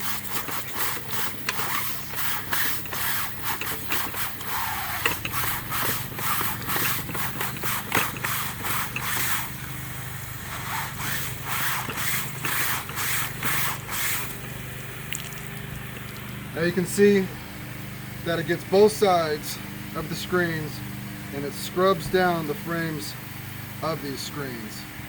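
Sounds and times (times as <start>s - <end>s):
brushes scrubbing a screen: 0.0s - 9.6s, 10.4s - 14.5s
water jets spraying: 0.0s - 24.8s
steady low hum: 0.0s - 25.0s.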